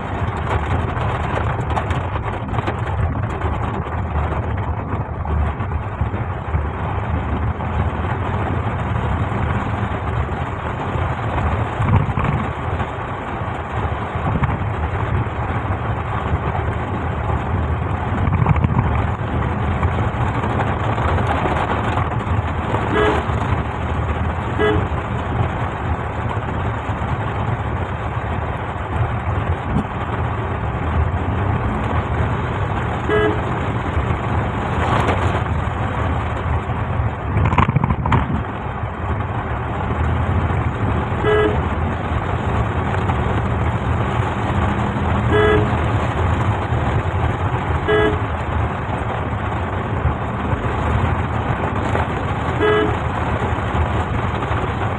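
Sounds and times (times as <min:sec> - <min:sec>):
rain and road noise inside car: 0:00.0 - 0:54.9
vehicle horn toots: 0:22.9 - 0:23.4, 0:24.6 - 0:24.9, 0:33.0 - 0:33.5, 0:41.2 - 0:41.7, 0:45.3 - 0:45.8, 0:47.8 - 0:48.3, 0:52.6 - 0:53.0.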